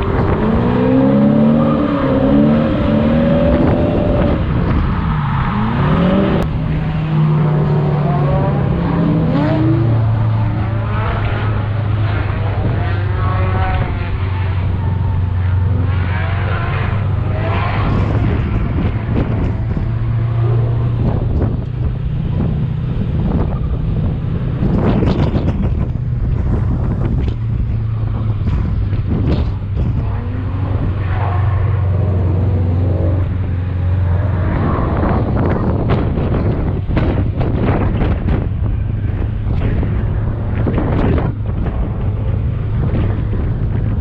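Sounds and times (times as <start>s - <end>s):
car engine revving hard: 0.0s - 21.6s, 29.1s - 38.2s
steady low drone: 0.0s - 44.0s.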